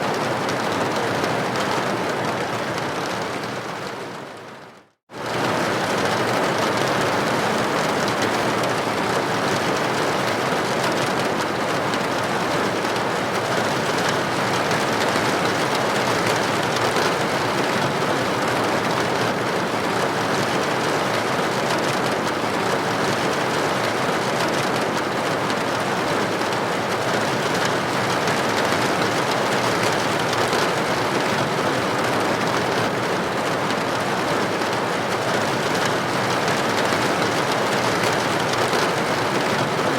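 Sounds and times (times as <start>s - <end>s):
rain hitting a window: 0.0s - 39.9s.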